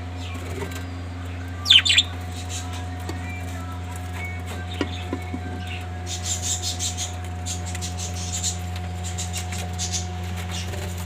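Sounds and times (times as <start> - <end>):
budgerigars chirping: 1.6 - 2.8.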